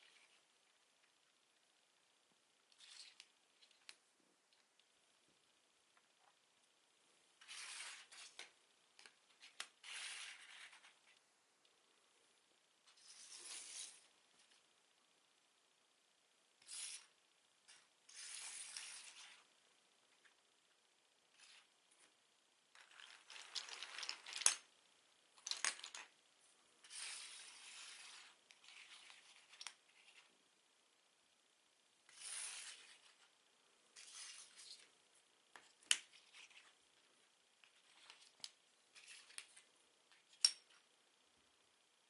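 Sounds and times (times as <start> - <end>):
plastic bricks rattling and clicking: 22.8 - 24.6.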